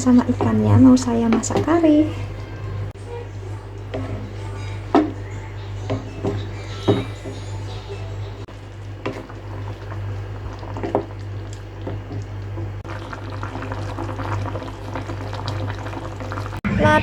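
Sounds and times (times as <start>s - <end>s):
food bubbling and crackling in a pan: 0.0s - 16.6s.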